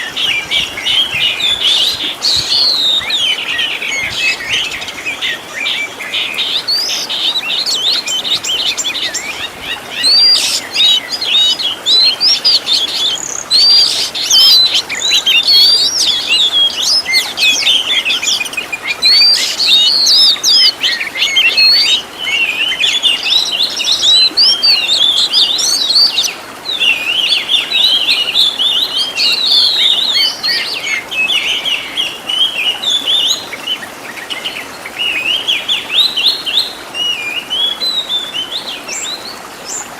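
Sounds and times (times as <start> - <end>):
songbird singing varied whistles: 0.0 - 31.5.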